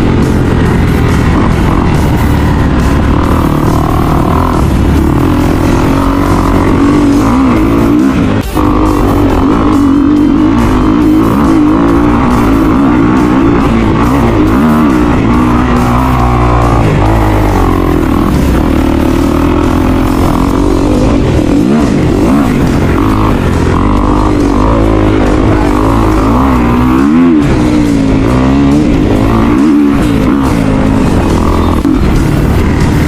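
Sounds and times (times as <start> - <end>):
background music: 0.0 - 33.0
dirt bike engine revving: 0.0 - 33.0.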